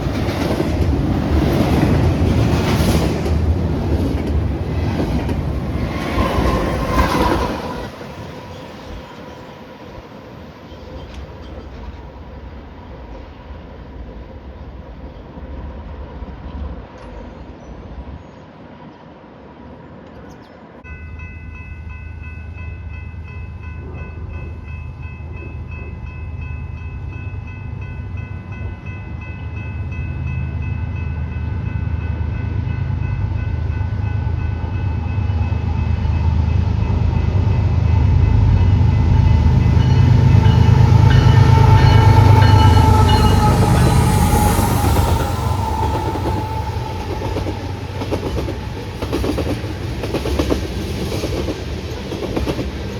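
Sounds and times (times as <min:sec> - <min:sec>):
diesel train engine rumble: 0:23.5 - 0:52.9
steady whining tones: 0:38.7 - 0:50.1.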